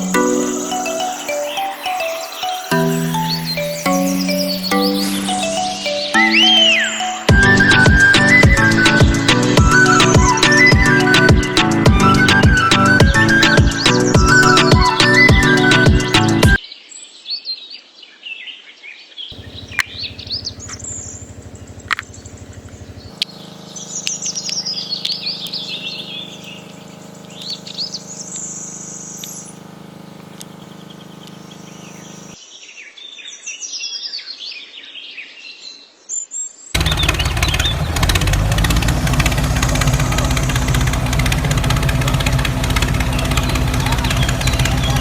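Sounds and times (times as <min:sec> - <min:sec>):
small birds chirping: 0:00.0 - 0:11.4, 0:19.3 - 0:45.0
loud dense mechanical sound: 0:02.8 - 0:16.6, 0:19.4 - 0:32.4, 0:36.8 - 0:45.0
steady low hum: 0:19.4 - 0:32.4, 0:36.8 - 0:45.0.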